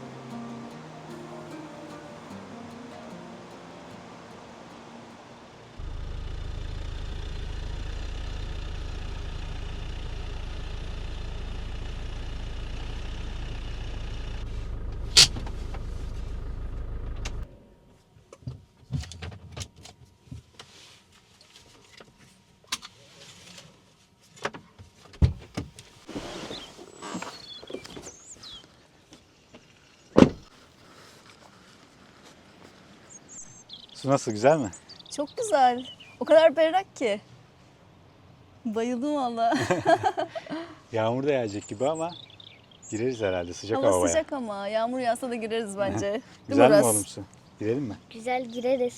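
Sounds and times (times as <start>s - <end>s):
motorhome engine running: 0.0s - 17.7s.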